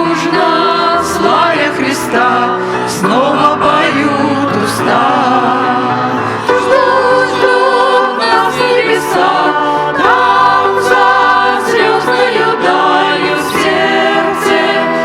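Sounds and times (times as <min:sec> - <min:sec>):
group of singers singing: 0:00.0 - 0:15.0.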